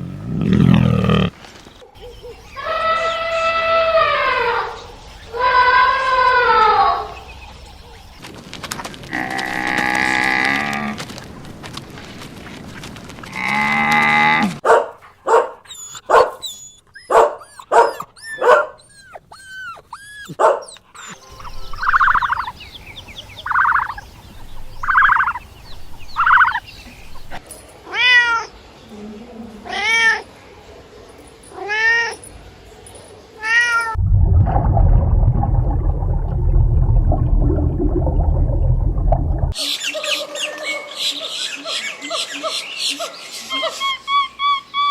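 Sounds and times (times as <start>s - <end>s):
cats meowing: 33.4s - 34.0s
low rumbling noise: 34.0s - 39.6s.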